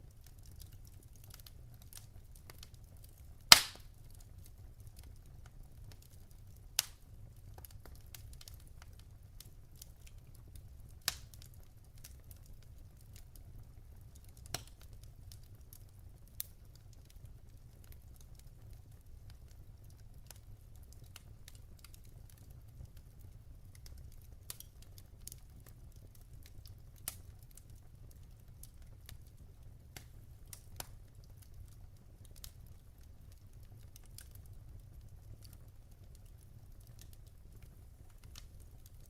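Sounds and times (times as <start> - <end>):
logs crackling and popping: 0.0 - 39.0
low rumble of flames: 0.0 - 39.0.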